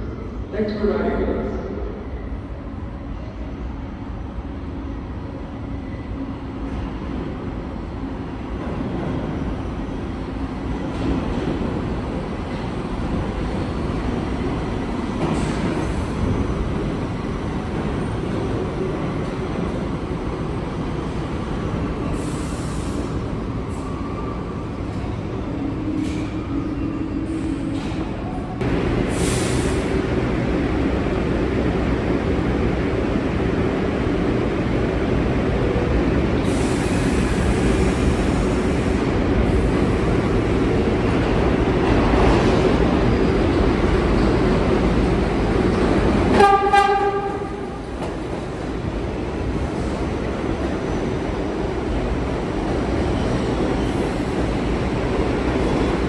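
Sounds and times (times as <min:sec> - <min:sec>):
subway train wheels rumbling: 0:00.0 - 0:56.0
train horn blast: 0:46.3 - 0:47.8.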